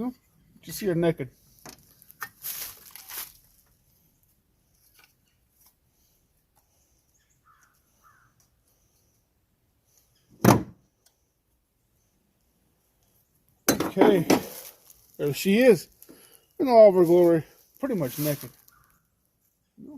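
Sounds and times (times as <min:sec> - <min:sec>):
loud short thunk: 0:10.4 - 0:10.8.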